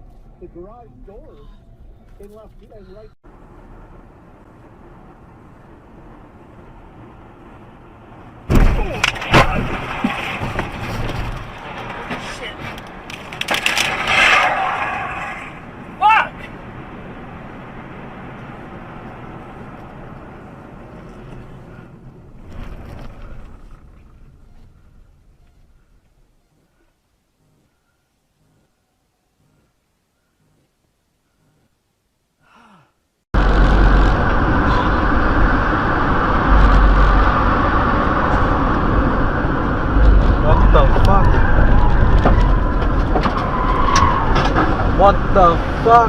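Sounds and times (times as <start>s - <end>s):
car driving: 0.0s - 26.2s, 33.4s - 46.0s
vehicle road and engine noise: 0.0s - 30.9s, 33.4s - 46.0s
loud rumbling burst: 33.4s - 46.0s.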